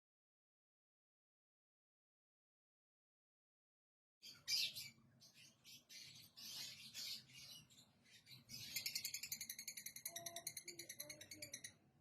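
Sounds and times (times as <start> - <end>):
lovebirds chirping: 4.2 - 12.0.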